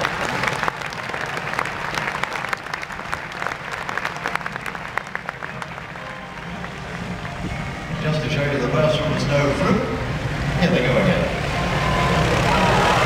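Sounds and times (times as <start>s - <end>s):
audience applauding: 0.0s - 8.2s, 11.4s - 13.0s.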